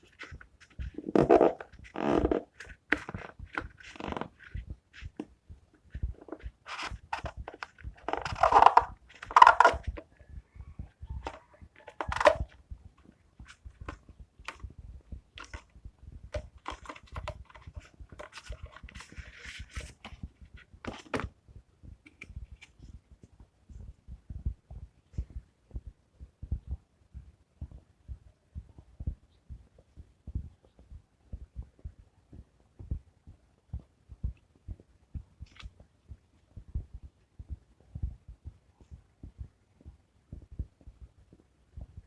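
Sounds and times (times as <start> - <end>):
small clicks and taps: 22.0 - 23.5.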